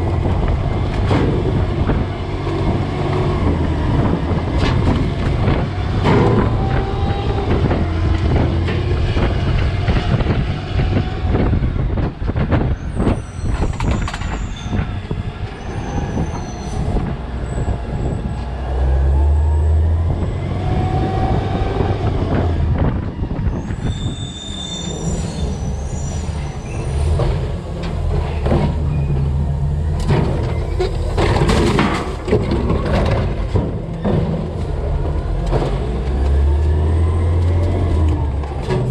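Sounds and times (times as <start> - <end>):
trash crunching and banging: 0.0 - 15.2, 26.9 - 38.9
hydraulics whining: 0.0 - 38.9
metal squealing: 12.8 - 18.3, 23.1 - 27.4
truck engine humming: 24.5 - 38.9.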